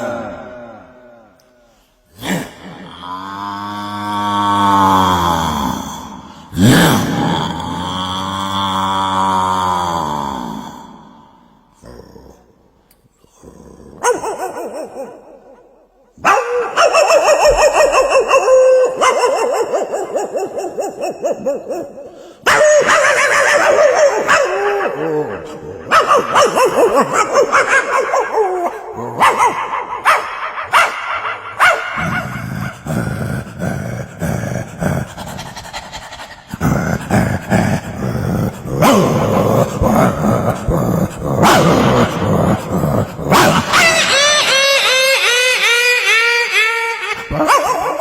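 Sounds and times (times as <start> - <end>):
man imitating dog barks: 0.0 - 3.0, 13.7 - 35.2, 36.6 - 48.0.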